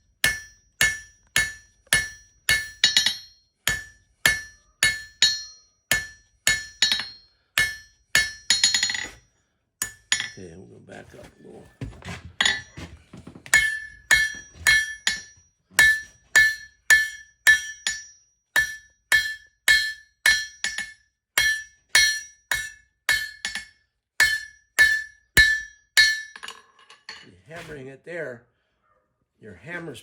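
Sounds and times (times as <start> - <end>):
hammer striking steel on anvil: 0.2 - 9.2, 9.8 - 10.4, 13.5 - 27.7.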